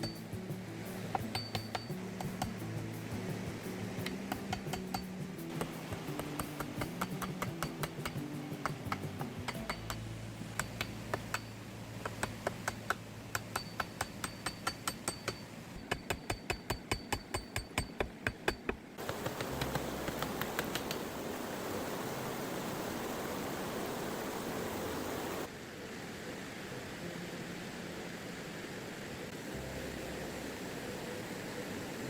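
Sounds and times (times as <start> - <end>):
rapid hard taps: 0.0 - 11.5, 12.1 - 21.0
steady rushing noise: 0.0 - 13.5, 19.0 - 32.0
soft background music: 0.0 - 13.8, 19.0 - 23.2, 24.4 - 32.0.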